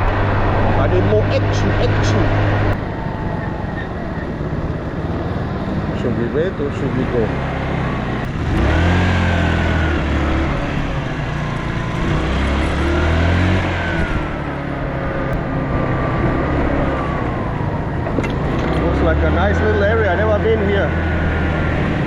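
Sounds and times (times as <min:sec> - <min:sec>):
wind rush: 0:00.0 - 0:06.0
motorbike engine accelerating: 0:00.0 - 0:22.0.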